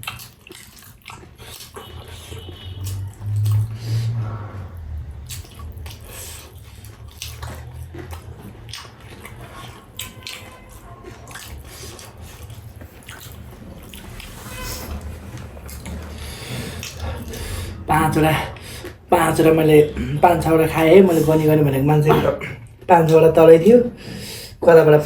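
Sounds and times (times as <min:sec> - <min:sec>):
chewing: 0:00.0 - 0:22.9
low hum: 0:02.9 - 0:08.5, 0:12.2 - 0:22.0.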